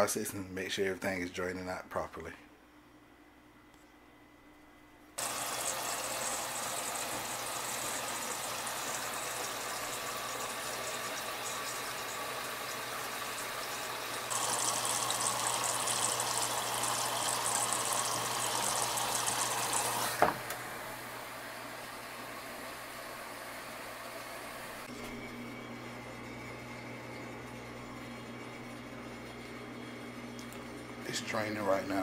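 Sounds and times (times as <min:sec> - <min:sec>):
washing machine low hum: 0:04.4 - 0:32.0
water rushing in washing machine: 0:05.2 - 0:24.9.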